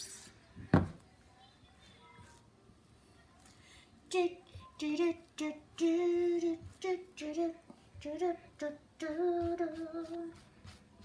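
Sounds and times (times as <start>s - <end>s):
person humming a wordless tune: 4.1s - 10.4s.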